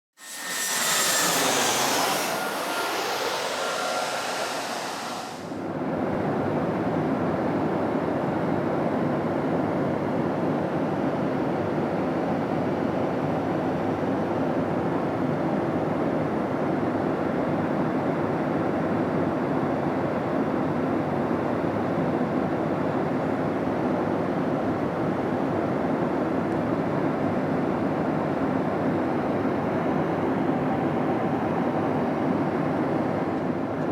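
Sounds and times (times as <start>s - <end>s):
hiss with falling tones: 0.4s - 5.6s
airplane cabin roar: 0.4s - 13.6s.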